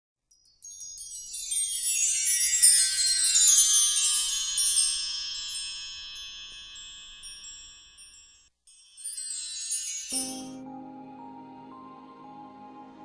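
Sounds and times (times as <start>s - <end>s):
wind chimes ringing: 0.3s - 10.7s
soft new-age music: 8.7s - 13.0s.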